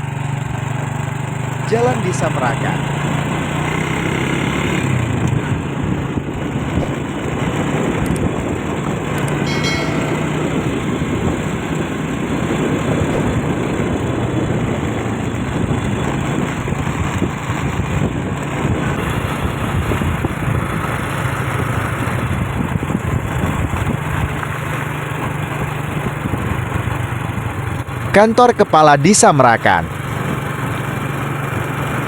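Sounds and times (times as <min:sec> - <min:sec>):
road and wind noise: 0:00.0 - 0:32.0
vehicle engine running: 0:13.0 - 0:28.6.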